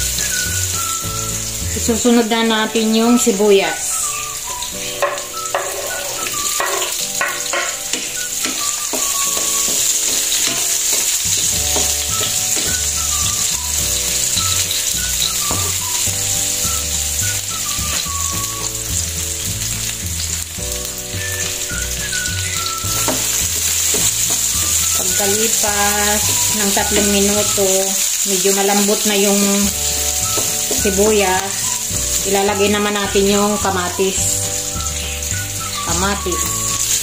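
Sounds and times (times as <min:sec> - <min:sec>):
onions sizzling in oil: 0:00.0 - 0:37.0
wooden spatula knocking wok: 0:05.0 - 0:27.7, 0:29.7 - 0:32.4.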